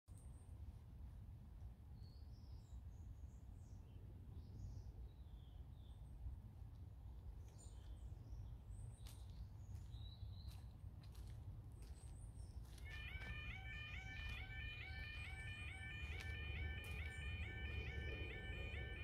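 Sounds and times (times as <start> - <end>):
small birds chirping: 7.1 - 12.9.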